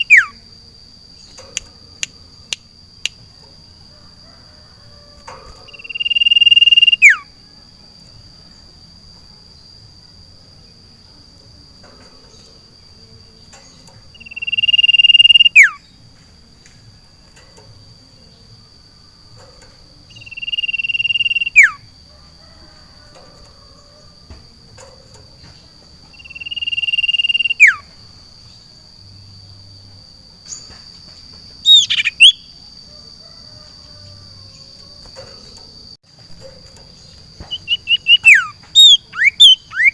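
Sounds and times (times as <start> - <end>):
bird whistling song: 0.0 - 0.4, 5.2 - 7.4, 13.6 - 16.0, 20.1 - 21.9, 26.1 - 28.0, 31.6 - 32.6, 37.0 - 39.9
high insect drone: 0.0 - 39.9.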